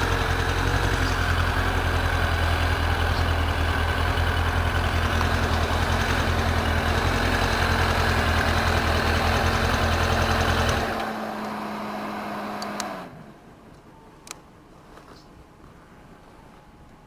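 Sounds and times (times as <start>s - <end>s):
motorcycle engine idling: 0.0s - 11.5s.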